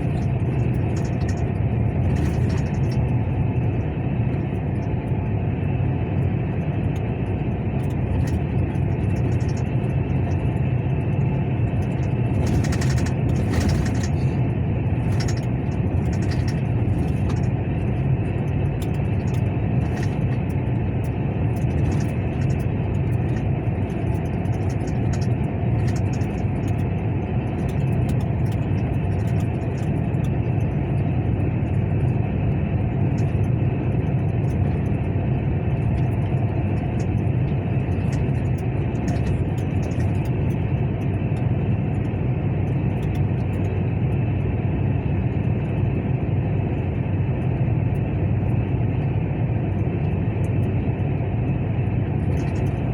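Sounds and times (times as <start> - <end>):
truck engine running: 0.0 - 32.2
light clicks and ticks: 43.0 - 43.7.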